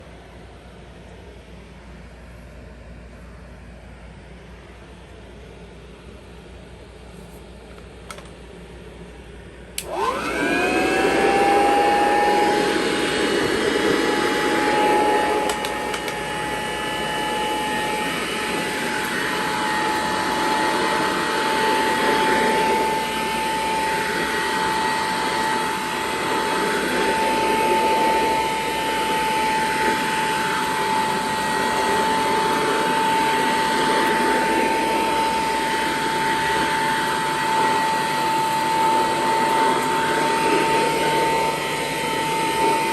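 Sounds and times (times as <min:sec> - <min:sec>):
vacuum switch click: 0:09.8 - 0:10.4, 0:15.4 - 0:16.2
vacuum cleaner motor whining: 0:09.8 - 0:42.9.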